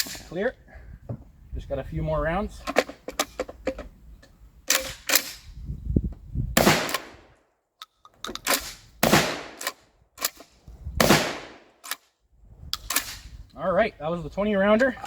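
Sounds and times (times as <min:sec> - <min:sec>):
shotgun shots with echo: 0:06.6 - 0:07.1, 0:09.0 - 0:09.7, 0:11.0 - 0:11.6.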